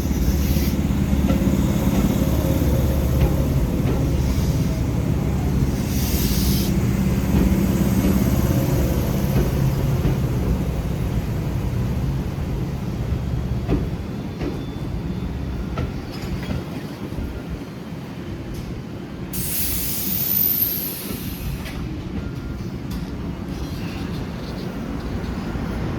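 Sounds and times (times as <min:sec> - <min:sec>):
electric train rumble: 0:00.0 - 0:25.9
short hiss: 0:19.4 - 0:21.7.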